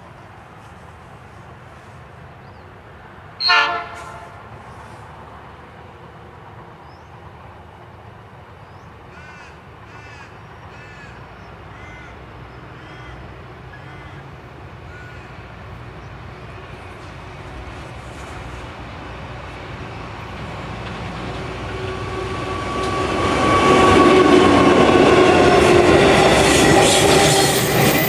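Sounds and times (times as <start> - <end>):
passing train rumble: 0.0 - 28.0
crow cawing: 9.1 - 12.2, 12.8 - 14.3, 14.9 - 15.4.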